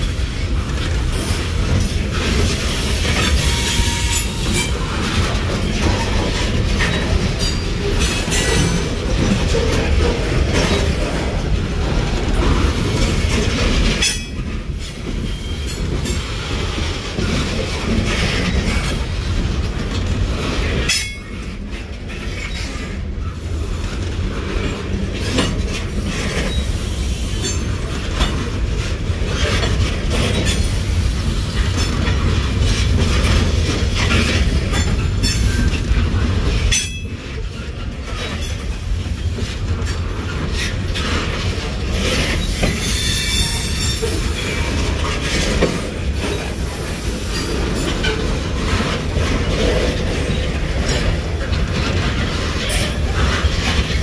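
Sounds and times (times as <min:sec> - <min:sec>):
rail joint clicks: 0:00.0 - 0:54.0
train cars rumbling: 0:00.0 - 0:54.0
metal wheel squeal: 0:42.3 - 0:44.7.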